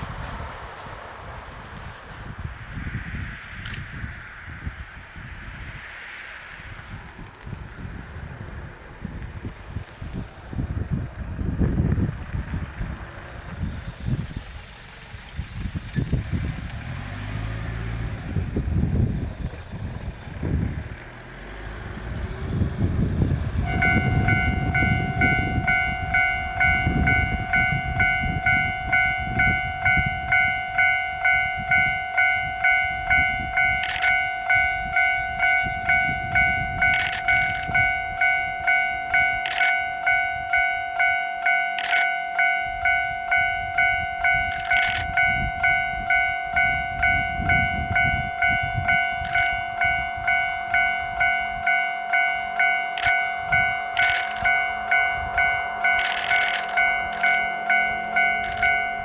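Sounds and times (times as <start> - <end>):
sharp clicks: 3.6 - 3.9, 33.8 - 34.6, 36.8 - 37.9, 39.4 - 39.9, 41.2 - 42.2, 44.5 - 45.2, 49.1 - 49.6, 52.3 - 59.0
low rumble: 6.6 - 39.4
level-crossing warning bell: 23.6 - 59.0.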